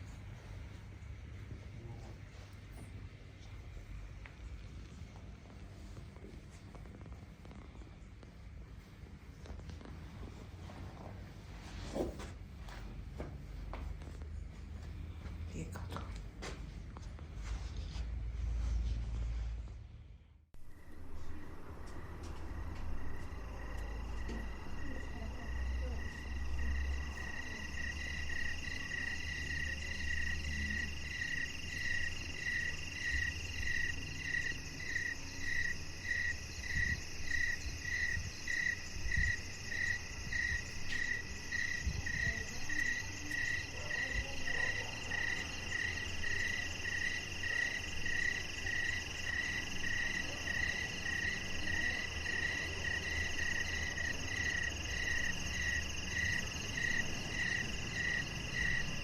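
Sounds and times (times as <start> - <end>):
high-pitched insect trill: 22.6 - 59.0.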